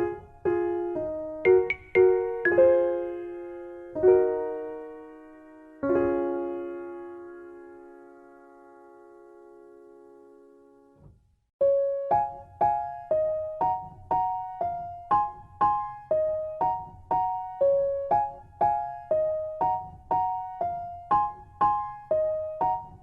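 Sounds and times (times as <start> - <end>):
piano-like keyboard melody: 0.0 - 11.0, 11.6 - 23.0.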